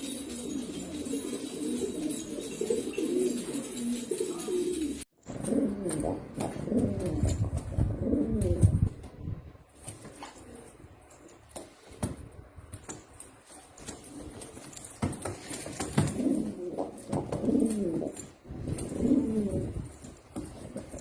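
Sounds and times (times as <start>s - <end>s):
pigeons cooing: 0.0s - 8.9s, 15.9s - 20.0s.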